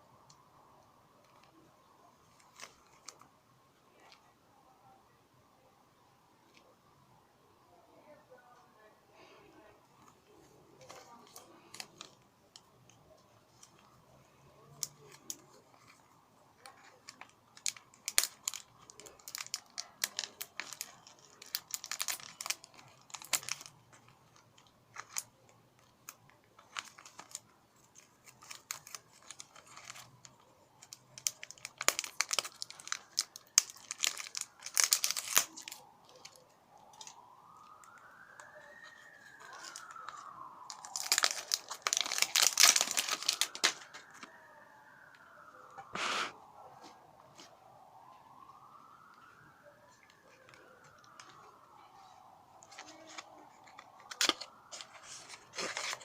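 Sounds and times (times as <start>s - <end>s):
packaging tearing and crinkling: 14.7s - 44.3s, 52.6s - 56.0s.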